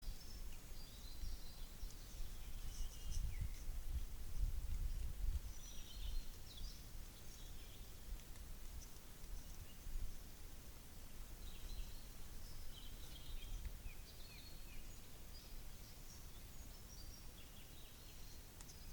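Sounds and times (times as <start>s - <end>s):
small birds chirping: 0.0s - 18.9s
wind buffeting microphone: 1.1s - 8.8s.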